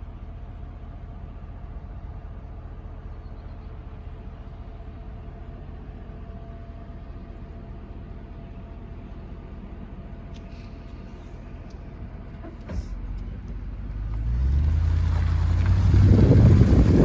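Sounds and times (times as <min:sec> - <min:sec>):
engine and road noise drone: 0:00.0 - 0:17.0
low rumble: 0:13.0 - 0:17.0.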